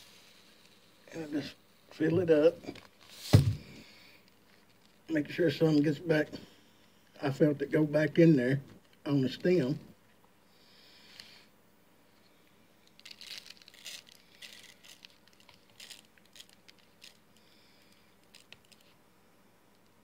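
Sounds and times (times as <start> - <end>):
salt grains rustling and crackling: 12.9 - 19.0.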